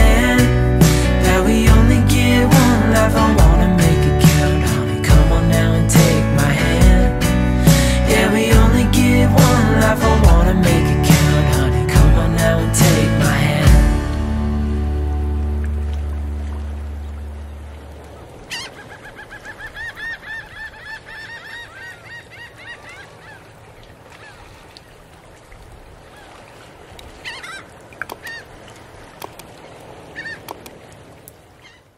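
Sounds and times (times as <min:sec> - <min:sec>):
closing music: 0:00.0 - 0:17.5
birds honking calls: 0:16.7 - 0:24.5, 0:27.2 - 0:28.6, 0:30.1 - 0:30.6.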